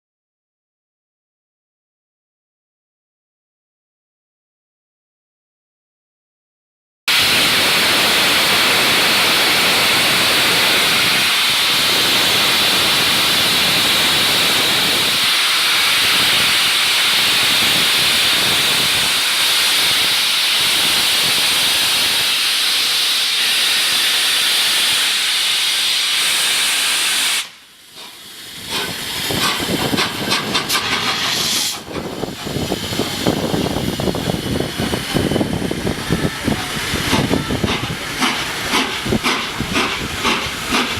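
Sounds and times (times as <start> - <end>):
locomotive steam hissing: 7.1 - 40.9
locomotive exhaust chuffs: 27.9 - 40.9.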